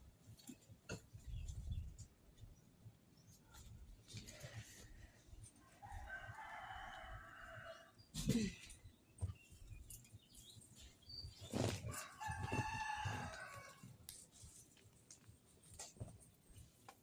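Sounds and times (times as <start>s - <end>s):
rooster crowing: 5.8s - 7.9s, 11.9s - 13.9s.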